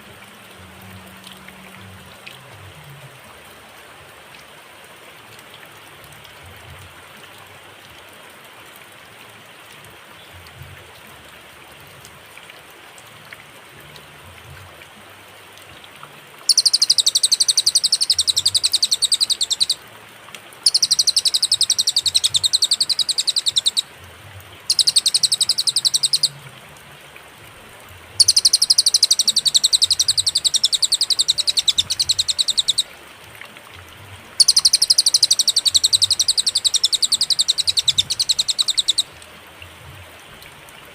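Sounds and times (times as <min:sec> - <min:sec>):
steady background hiss: 0:00.0 - 0:40.9
songbird singing high notes: 0:16.5 - 0:19.8, 0:20.6 - 0:23.9, 0:24.7 - 0:26.4, 0:28.2 - 0:32.9, 0:34.4 - 0:39.2.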